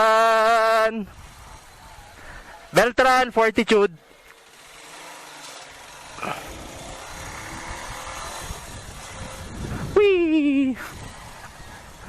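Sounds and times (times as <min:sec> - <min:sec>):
motorcycle engine accelerating: 0:00.0 - 0:03.0, 0:04.0 - 0:12.0
wind rush: 0:06.4 - 0:12.0.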